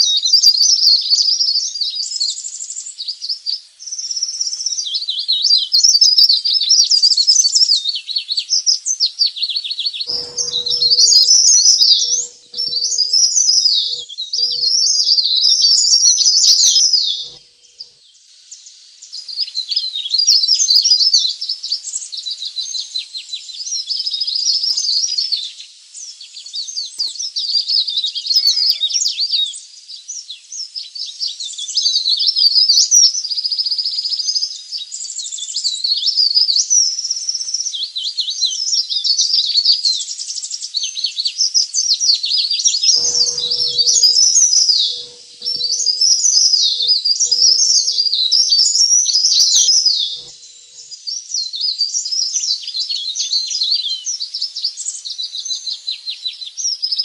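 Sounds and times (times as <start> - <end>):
faint low hum: 10.1 - 15.5, 43.0 - 48.5
leaf warbler song chattering trills: 10.1 - 23.6, 42.7 - 51.3.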